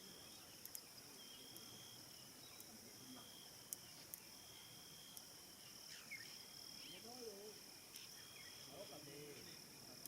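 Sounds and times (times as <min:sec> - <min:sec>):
crickets trilling: 0:00.0 - 0:10.0
lower cricket trill: 0:00.0 - 0:10.0
sharp clicks: 0:00.6 - 0:00.8.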